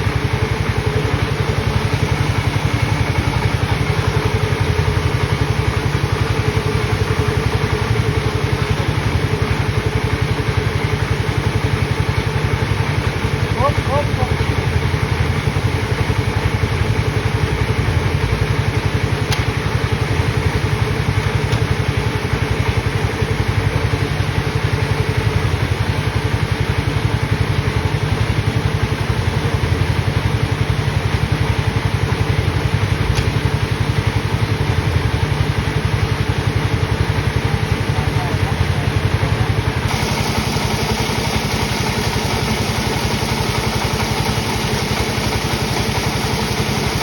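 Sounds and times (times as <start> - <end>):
sawmill machinery engine running: 0.0 - 47.0.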